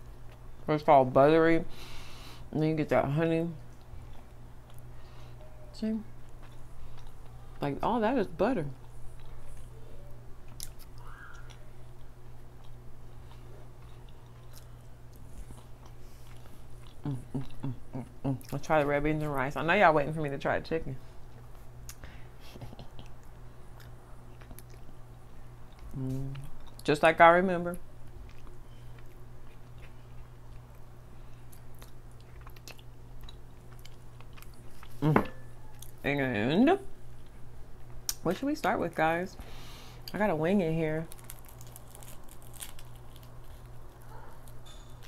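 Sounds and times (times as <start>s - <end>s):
steady low hum: 0.0s - 45.0s
chewing mouth sounds: 10.5s - 18.6s, 21.8s - 25.0s, 31.5s - 36.0s.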